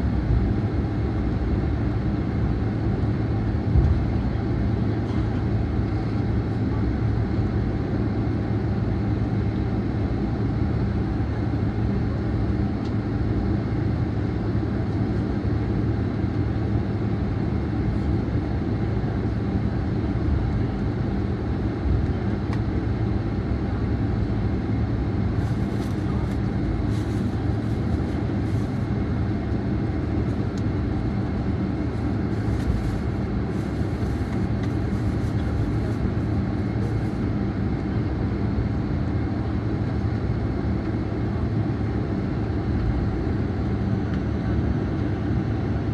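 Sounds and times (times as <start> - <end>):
airliner cabin rumble and hum: 0.0 - 45.9.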